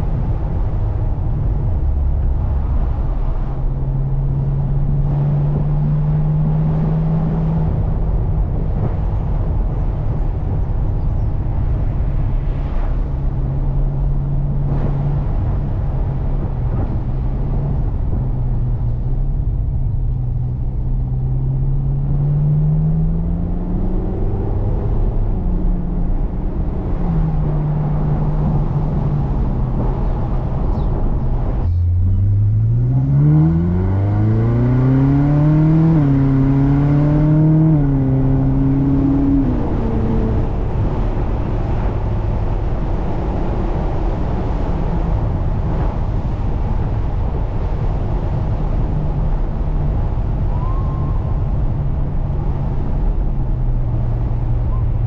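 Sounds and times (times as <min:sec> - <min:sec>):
road noise: 0:00.0 - 0:55.0
car engine revving: 0:20.4 - 0:50.4.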